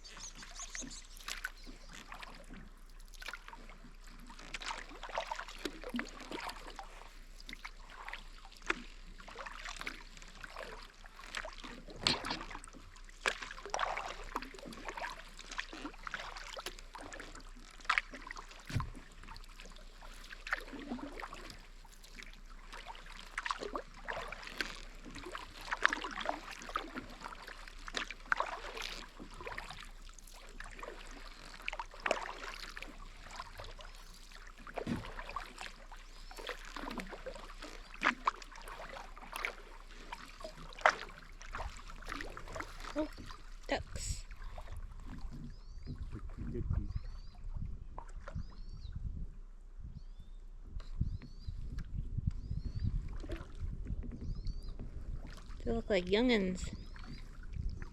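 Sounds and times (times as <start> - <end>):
water splashes and drips: 0.0 - 46.6
kayak paddle strokes in water: 0.0 - 49.2, 50.7 - 57.9.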